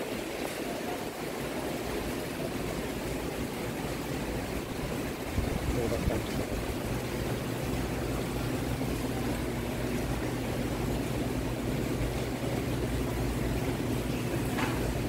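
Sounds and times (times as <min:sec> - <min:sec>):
hurricane-force wind: 0:00.0 - 0:07.3
heavy rain: 0:00.0 - 0:15.0.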